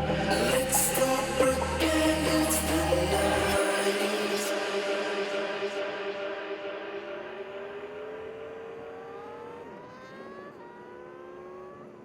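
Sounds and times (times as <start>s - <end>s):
motorcycle engine accelerating: 7.2s - 12.0s.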